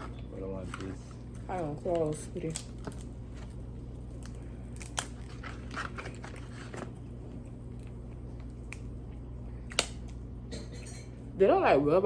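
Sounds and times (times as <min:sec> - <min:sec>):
steady low hum: 0:00.0 - 0:12.0
person chewing and crunching: 0:02.6 - 0:10.3.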